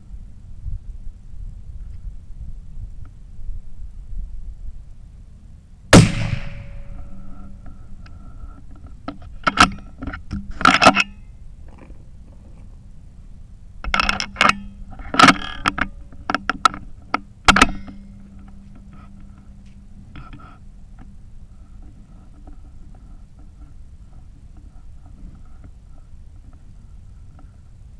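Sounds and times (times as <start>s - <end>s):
rifle shot: 5.9s - 7.4s.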